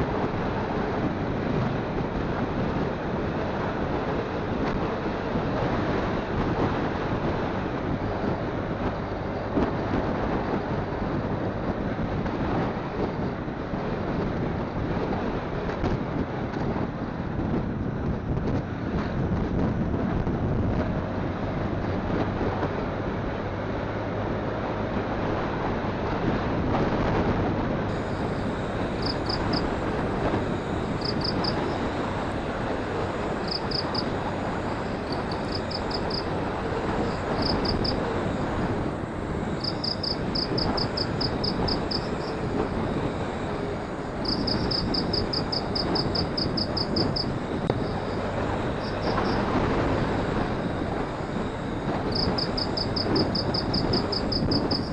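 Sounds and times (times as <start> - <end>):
wind on microphone: 0.0 - 23.3, 24.9 - 54.9
road noise: 27.5 - 54.9
rapid high chirps: 27.9 - 49.5.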